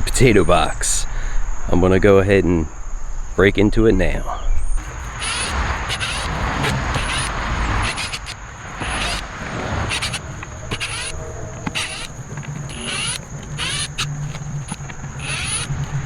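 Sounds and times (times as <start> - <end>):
thin high-pitched whine: 4.0 - 16.0
rustling and scraping soil: 4.1 - 16.0.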